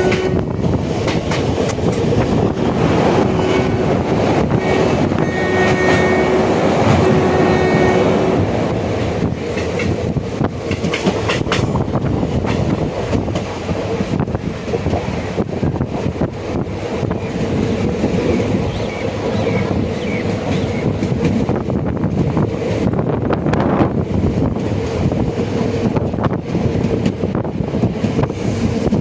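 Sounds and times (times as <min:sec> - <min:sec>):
train wheels rumbling on rail: 0:00.0 - 0:29.0
clicks and clatter over track: 0:01.0 - 0:02.4, 0:09.5 - 0:13.5.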